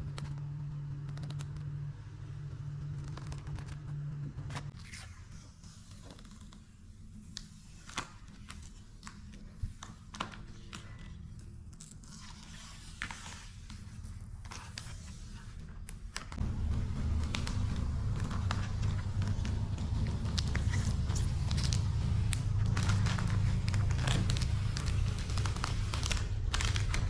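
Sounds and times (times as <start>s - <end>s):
vinyl decal scraping and crinkling: 2.8s - 27.0s
low rumble: 16.4s - 27.0s.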